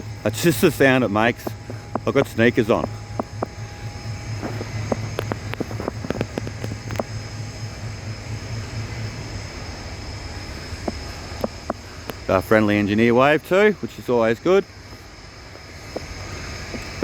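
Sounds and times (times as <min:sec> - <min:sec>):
idling locomotive hum: 0:00.0 - 0:17.0
footsteps in sneakers: 0:00.4 - 0:09.2, 0:10.6 - 0:12.3.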